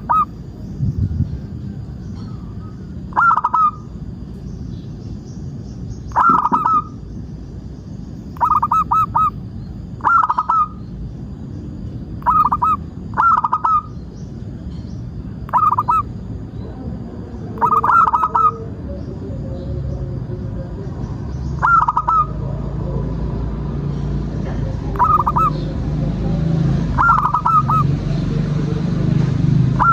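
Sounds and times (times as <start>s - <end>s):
dove cooing: 0.0s - 0.3s, 2.3s - 4.0s, 6.1s - 7.0s, 8.4s - 9.4s, 10.0s - 10.8s, 12.2s - 14.0s, 15.5s - 20.9s, 21.6s - 23.4s, 24.9s - 28.5s
low background rumble: 0.0s - 29.9s.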